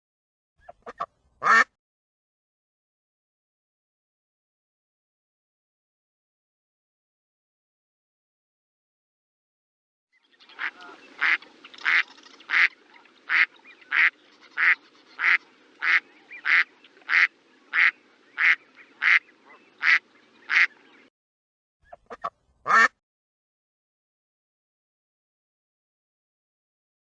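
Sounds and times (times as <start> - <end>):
duck quacking: 0.6 - 1.7, 10.6 - 20.8, 21.9 - 23.0.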